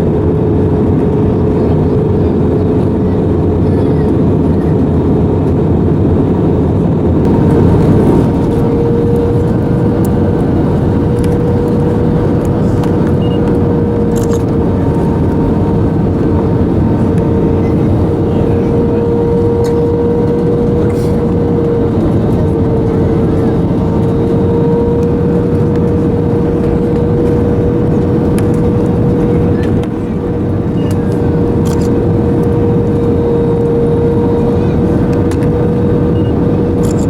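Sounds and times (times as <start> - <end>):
airliner engines droning: 0.0 - 37.0
held hum tone: 0.0 - 37.0.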